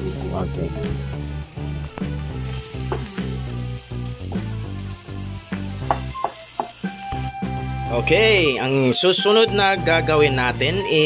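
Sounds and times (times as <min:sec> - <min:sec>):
background music: 0:00.0 - 0:11.0
onions sizzling in frying pan: 0:00.0 - 0:11.0.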